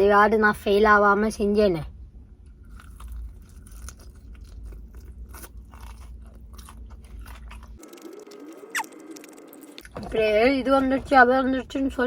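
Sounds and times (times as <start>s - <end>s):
crunching fried chicken: 2.5s - 10.0s.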